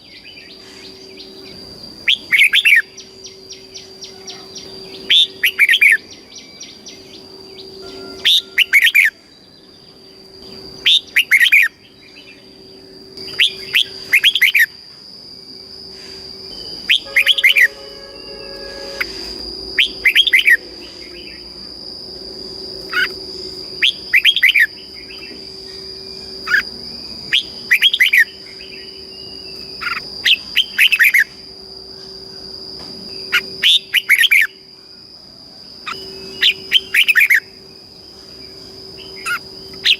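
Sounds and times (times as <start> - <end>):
bird whistled song: 0.0 - 10.2, 10.8 - 14.8, 16.4 - 21.5, 22.9 - 23.2, 23.8 - 31.3, 33.2 - 34.6, 35.8 - 37.6
steady high tone: 1.0 - 14.8, 15.6 - 31.2.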